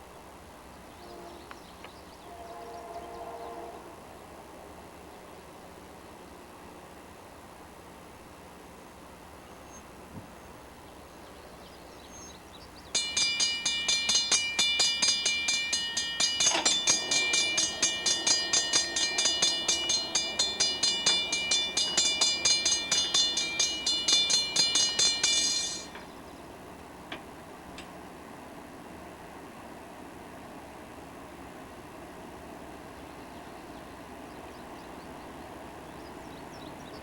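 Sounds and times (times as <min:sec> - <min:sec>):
railroad crossing bell ringing: 0:12.8 - 0:26.3.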